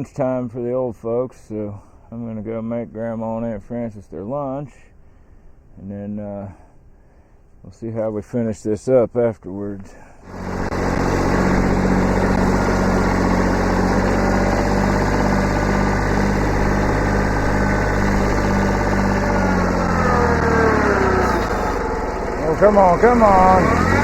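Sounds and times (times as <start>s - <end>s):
tractor diesel engine running: 10.2s - 24.0s.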